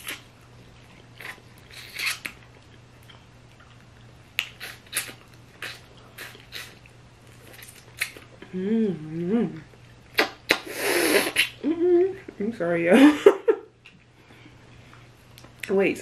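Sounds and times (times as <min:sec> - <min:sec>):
chewing and wet mouth smacks: 0:00.0 - 0:08.3.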